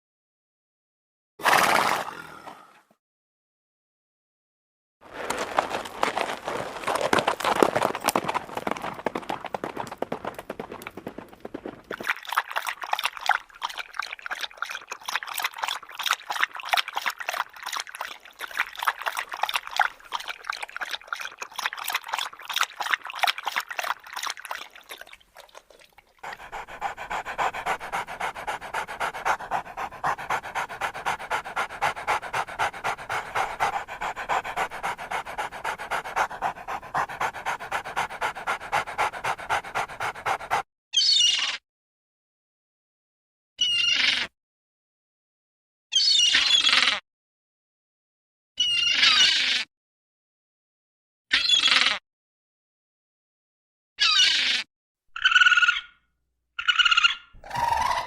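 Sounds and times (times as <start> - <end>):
dog panting: 5.3 - 40.6.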